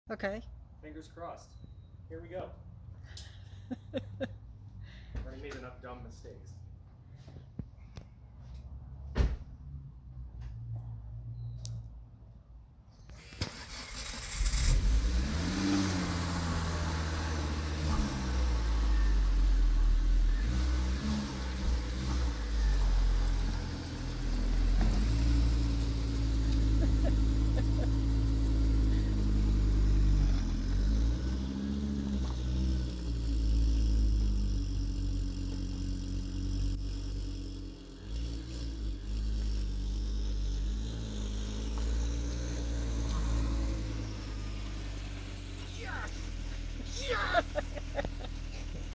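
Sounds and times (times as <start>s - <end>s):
car engine revving: 13.4s - 46.9s.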